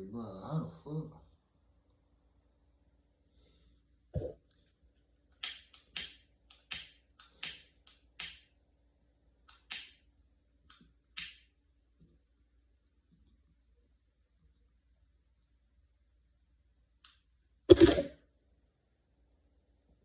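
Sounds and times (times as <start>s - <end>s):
sharp clicks or snaps: 5.4s - 8.5s, 9.5s - 10.0s, 10.7s - 11.4s, 17.0s - 18.1s.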